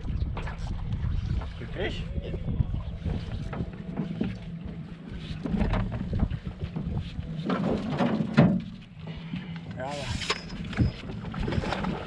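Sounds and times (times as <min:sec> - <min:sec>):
wind buffeting microphone: 0:00.0 - 0:08.0
small boat motor running: 0:02.4 - 0:12.0.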